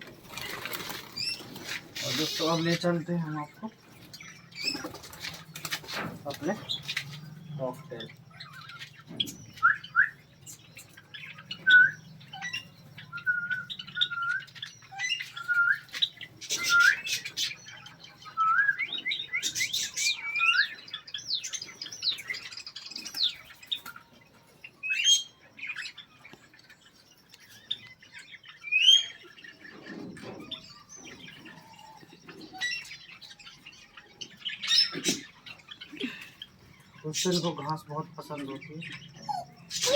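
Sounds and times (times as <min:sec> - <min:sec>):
cockatiel whistled chirps: 0:09.6 - 0:10.2, 0:11.5 - 0:17.2.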